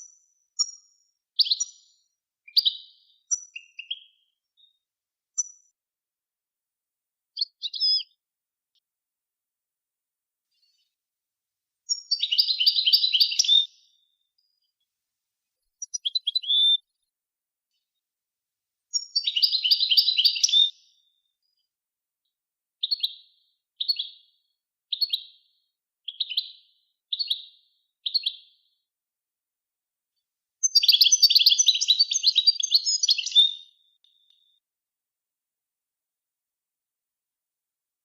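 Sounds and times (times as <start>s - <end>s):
songbird twittering: 1.4s - 1.8s, 2.5s - 4.8s, 7.4s - 8.2s, 11.9s - 14.1s, 15.8s - 16.8s, 18.9s - 21.1s, 22.8s - 28.7s, 30.6s - 34.6s.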